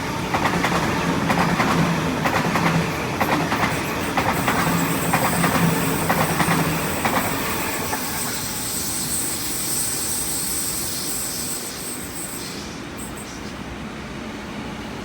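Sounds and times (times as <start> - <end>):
train wheels clicking over rail joints: 0.2 - 10.4.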